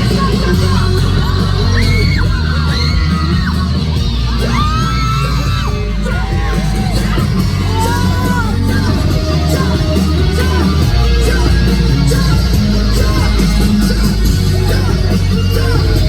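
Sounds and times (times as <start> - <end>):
crowd yelling and whooping: 0.0 - 16.0
live concert music: 0.0 - 16.0.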